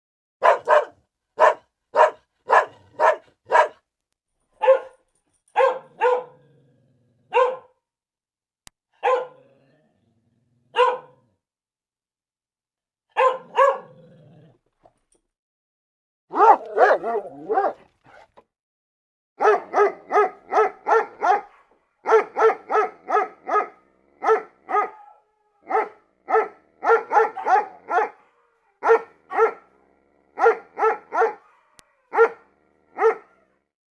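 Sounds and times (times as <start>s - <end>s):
dog barking: 0.4s - 3.8s, 4.6s - 6.5s, 7.3s - 7.8s, 9.0s - 9.5s, 10.7s - 11.2s, 13.1s - 14.0s, 16.3s - 18.4s, 19.4s - 33.6s.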